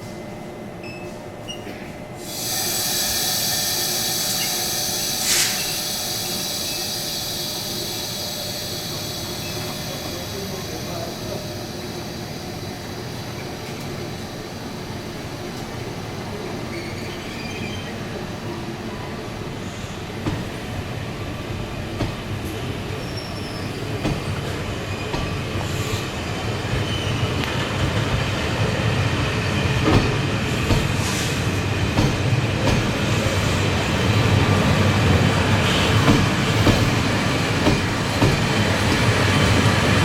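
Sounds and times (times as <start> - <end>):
train on steel rails: 0.0 - 40.0
wheel squeal: 16.7 - 18.0, 23.0 - 23.8.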